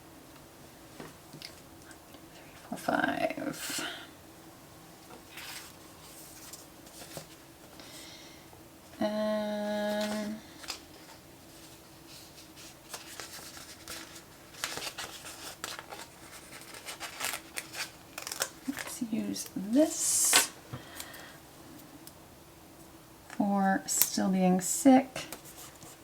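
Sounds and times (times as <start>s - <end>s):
paper crackling and rustling: 5.1s - 7.5s, 9.8s - 19.6s, 25.3s - 26.0s.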